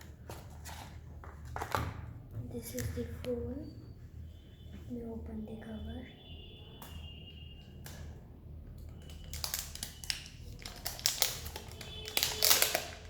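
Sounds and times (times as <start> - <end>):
plastic packaging crinkling: 9.0 - 13.0.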